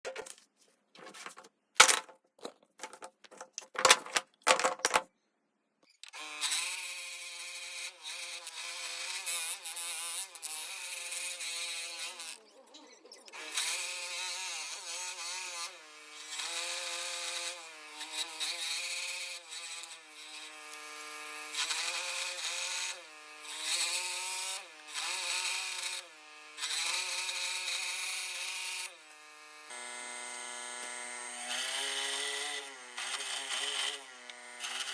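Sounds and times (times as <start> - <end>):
power tool cutting wood: 6.1 - 12.5, 13.3 - 34.9.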